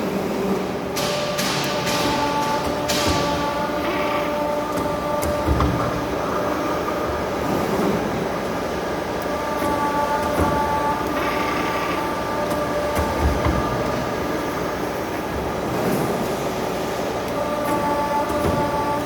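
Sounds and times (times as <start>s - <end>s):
machine hum with whining tones: 0.0s - 19.0s
machine knocks: 0.9s - 8.2s, 9.5s - 16.3s.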